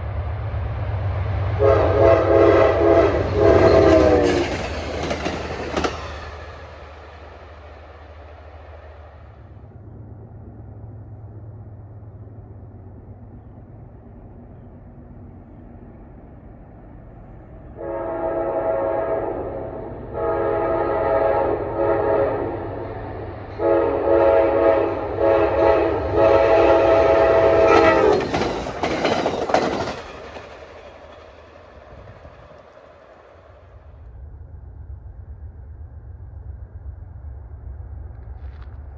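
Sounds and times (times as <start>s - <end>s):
train rumbling and passing: 0.0s - 38.9s
multi-chime train horn: 1.6s - 5.1s, 17.8s - 22.9s, 23.5s - 28.4s.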